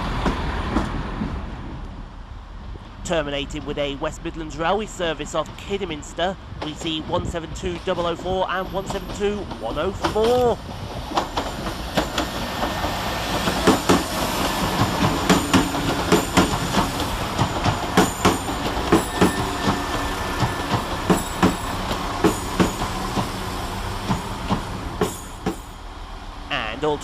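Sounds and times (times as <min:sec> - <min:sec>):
train arriving: 0:00.0 - 0:27.0
wheels clicking over rail joints: 0:06.6 - 0:23.4.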